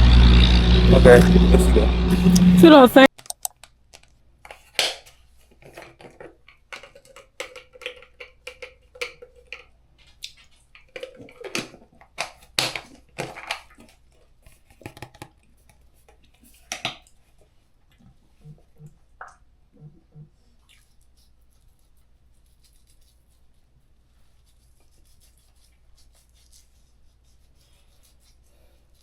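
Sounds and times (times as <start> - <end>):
faint low hum: 0.0 - 3.1.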